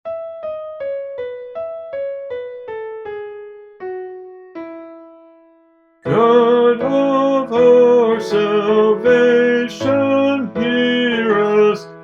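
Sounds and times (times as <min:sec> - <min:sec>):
piano melody: 0:00.0 - 0:12.0.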